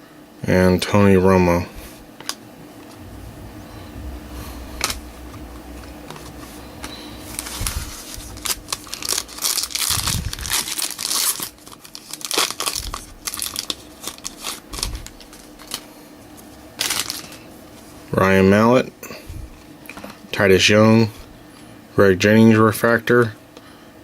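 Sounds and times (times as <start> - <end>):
foil wrapper crinkling: 7.3 - 15.9, 16.8 - 17.4.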